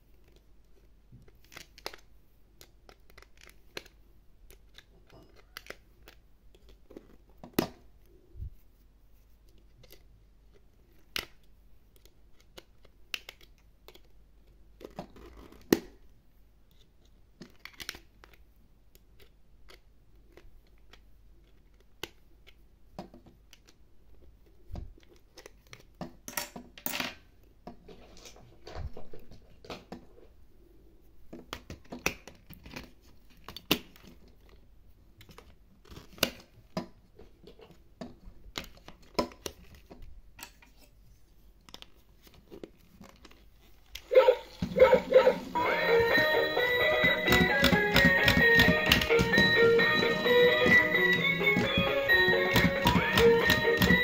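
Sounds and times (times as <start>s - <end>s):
plastic casing knocks and rattles: 47.0s - 49.6s.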